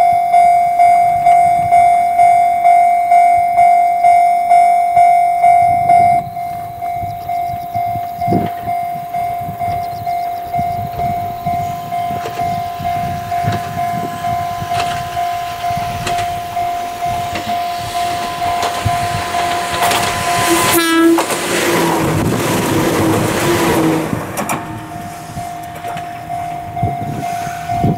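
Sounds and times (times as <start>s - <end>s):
level crossing alarm ringing: 0.0s - 27.9s
train passing with wheel noise: 0.0s - 27.9s
train horn: 11.6s - 27.9s.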